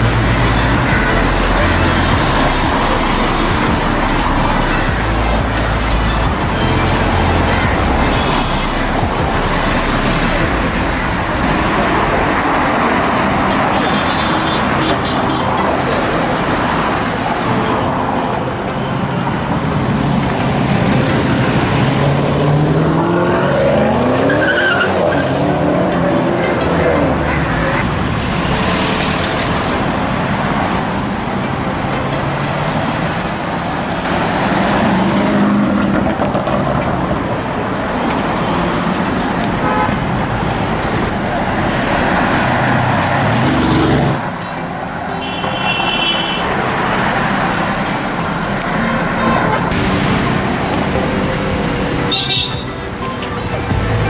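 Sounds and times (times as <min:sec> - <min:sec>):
car revving and passing: 0:00.0 - 0:54.0
street traffic: 0:00.0 - 0:54.0.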